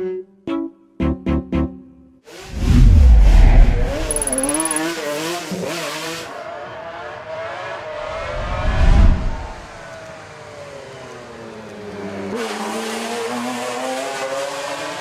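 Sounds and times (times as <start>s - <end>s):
car engine revving hard: 4.8s - 8.2s, 12.4s - 15.0s.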